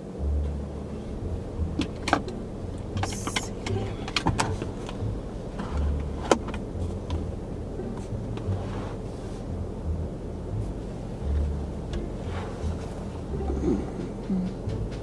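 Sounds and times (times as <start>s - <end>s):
low rumble inside car: 0.0s - 15.0s
sharp clicks and knocks: 1.6s - 8.6s, 13.4s - 15.0s.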